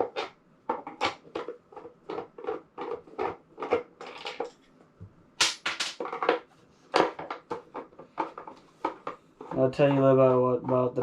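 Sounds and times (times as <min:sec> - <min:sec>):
hard parts knocking and clattering: 0:05.4 - 0:11.0.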